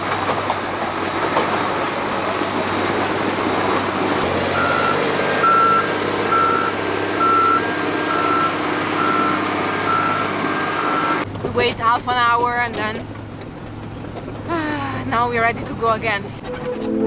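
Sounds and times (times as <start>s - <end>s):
heavy vehicle engine running: 0.0s - 17.0s
reversing alarm beeping: 4.5s - 11.2s.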